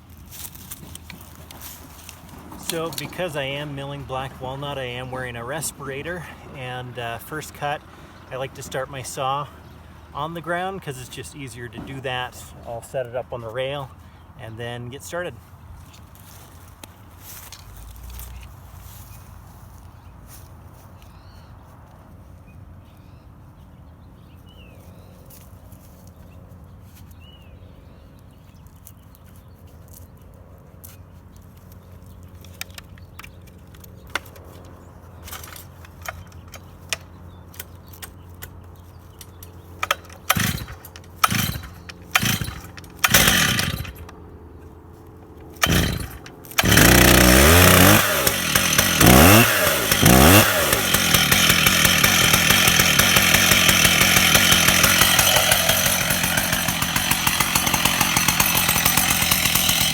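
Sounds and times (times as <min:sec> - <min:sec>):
chainsaw starter cord pulls: 0:00.4 - 0:15.2, 0:32.4 - 0:44.3, 0:45.2 - 0:59.9
chainsaw engine revving: 0:00.7 - 0:15.2, 0:39.8 - 0:44.2, 0:45.2 - 0:59.9.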